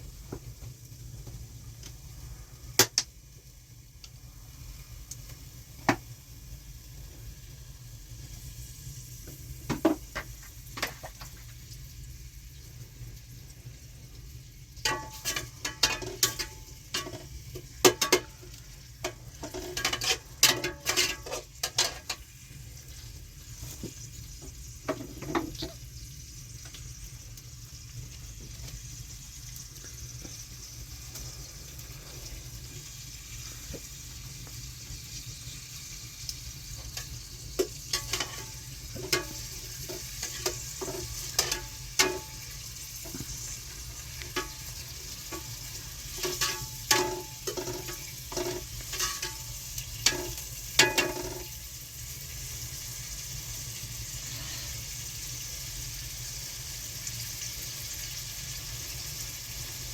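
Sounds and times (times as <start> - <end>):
food sizzling in a pan: 0.0 - 59.9
utensil knocking and scraping pan: 14.8 - 18.4, 19.0 - 22.2, 37.0 - 42.4, 44.2 - 44.7, 45.3 - 51.5.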